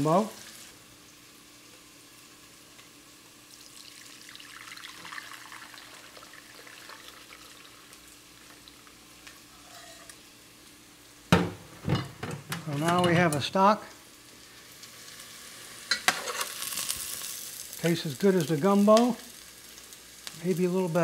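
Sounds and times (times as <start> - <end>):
vegetables sizzling in oil: 0.0 - 21.0
liquid trickling: 3.6 - 7.9.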